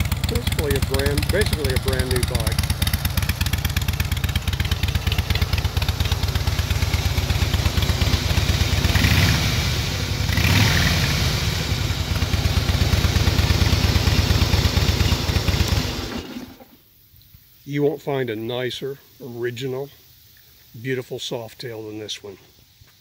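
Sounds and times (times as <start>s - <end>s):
motorcycle throttle blips: 0.0s - 16.6s
motorcycle engine idling: 0.0s - 16.8s.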